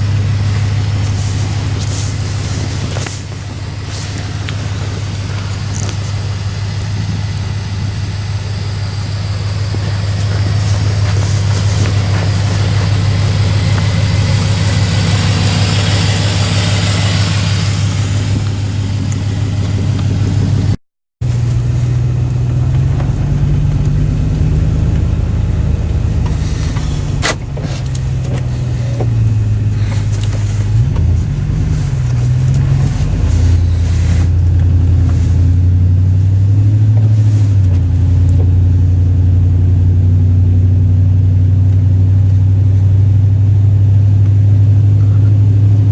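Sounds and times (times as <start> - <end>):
hiss: 0.0 - 18.4, 23.3 - 34.4
loud truck engine revving: 0.0 - 45.9.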